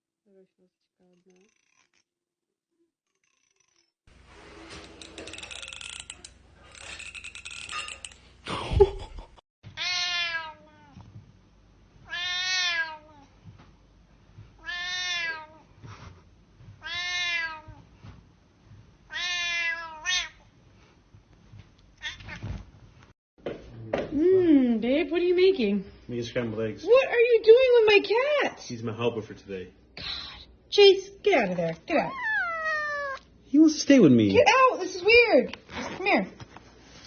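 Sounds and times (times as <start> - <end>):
cat meowing: 9.8 - 11.0, 12.1 - 13.2, 14.6 - 15.6, 16.8 - 17.8, 19.1 - 20.4, 32.0 - 33.3.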